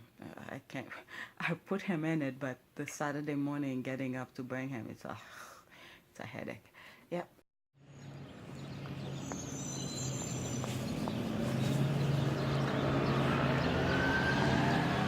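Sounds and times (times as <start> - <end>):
vehicle motor hum: 7.9 - 15.0.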